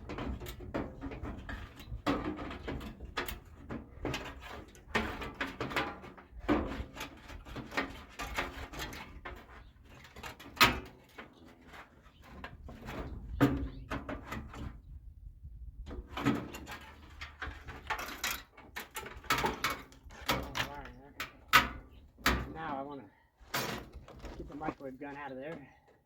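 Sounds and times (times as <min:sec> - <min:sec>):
metal parts clanking and rattling: 0:16.1 - 0:22.5, 0:23.4 - 0:24.7.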